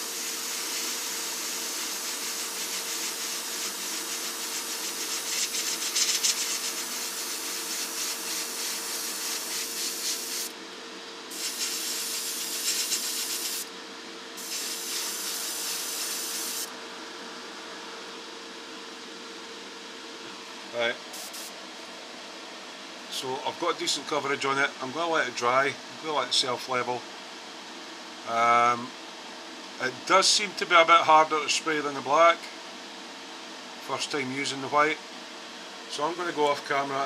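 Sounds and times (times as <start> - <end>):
airbrush spraying hiss: 0.0 - 10.6, 11.3 - 13.7, 14.4 - 16.7, 21.2 - 21.6
extractor fan hum: 0.0 - 31.2.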